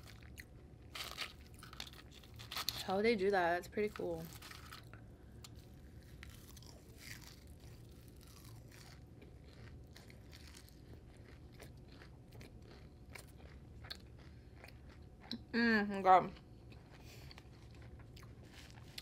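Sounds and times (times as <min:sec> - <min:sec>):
chewing crispy food: 0:00.0 - 0:02.9, 0:03.6 - 0:15.5, 0:16.3 - 0:19.0.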